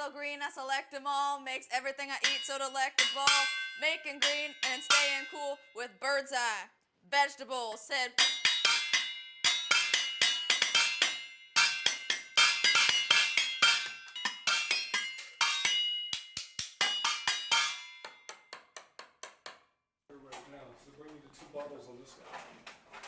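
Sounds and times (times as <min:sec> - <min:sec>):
pitched percussion music: 0:02.2 - 0:05.6, 0:08.1 - 0:19.5.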